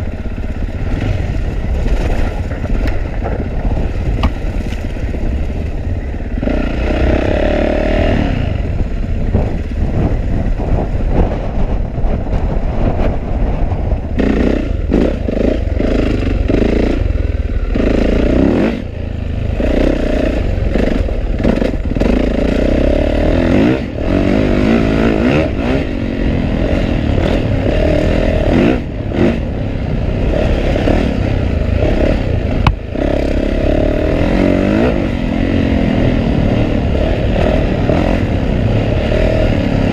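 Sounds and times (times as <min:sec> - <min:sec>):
chassis clattering over rough ground: 0:00.0 - 0:06.3
dirt bike engine revving: 0:00.0 - 0:11.3, 0:14.2 - 0:39.9.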